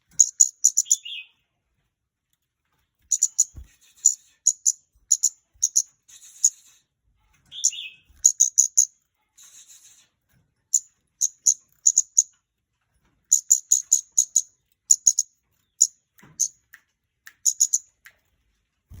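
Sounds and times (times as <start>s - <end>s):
bird calling in high ticking chips: 0.2s - 1.2s, 3.1s - 6.6s, 7.5s - 10.0s, 10.7s - 12.3s, 13.3s - 16.6s, 17.4s - 17.9s.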